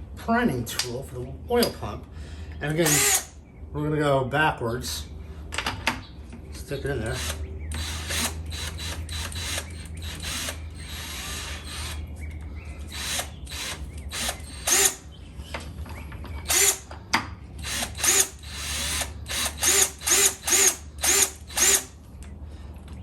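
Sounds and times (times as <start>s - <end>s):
power drill spinning in bursts: 2.8s - 3.3s, 7.0s - 12.0s, 12.9s - 15.0s, 16.5s - 16.9s, 17.6s - 22.0s.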